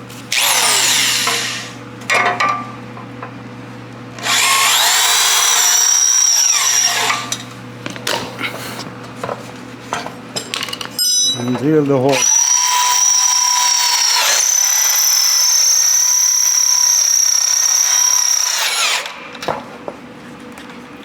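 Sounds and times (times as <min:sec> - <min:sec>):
electric drill drilling: 0:00.3 - 0:01.8, 0:04.2 - 0:07.4, 0:12.1 - 0:19.3.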